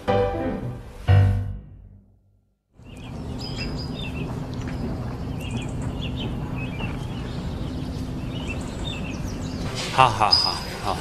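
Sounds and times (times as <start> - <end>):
low hum: 2.8 - 11.0
small birds chirping: 2.8 - 11.0.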